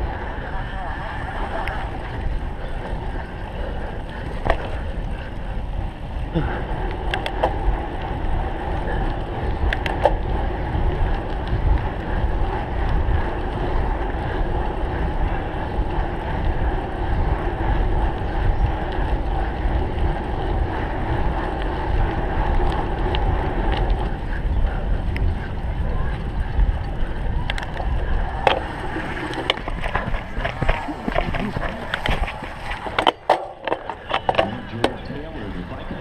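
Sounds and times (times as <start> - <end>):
hum from moving bike: 0.0 - 36.0
wind buffeting microphone: 0.0 - 36.0.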